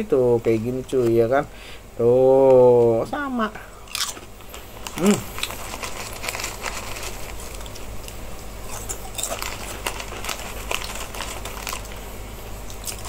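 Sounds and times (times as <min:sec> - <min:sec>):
crunching crispy snack: 0:03.9 - 0:12.1, 0:12.7 - 0:13.0.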